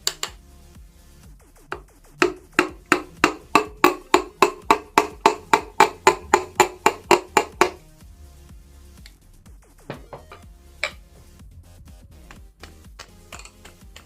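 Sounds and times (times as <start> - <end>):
hammer striking with ring: 2.2 - 7.8, 9.9 - 11.0.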